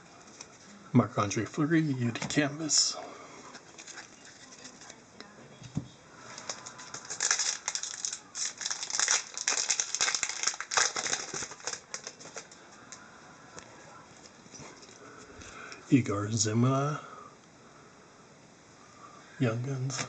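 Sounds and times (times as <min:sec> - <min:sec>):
card wrapping rustling and crackling: 0:00.1 - 0:00.7, 0:03.5 - 0:05.0, 0:06.2 - 0:13.0.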